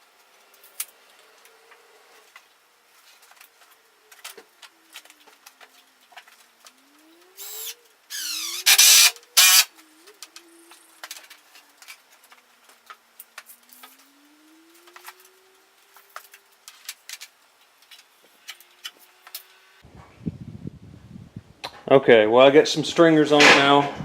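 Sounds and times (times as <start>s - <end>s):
power tool whirring: 7.2s - 9.8s.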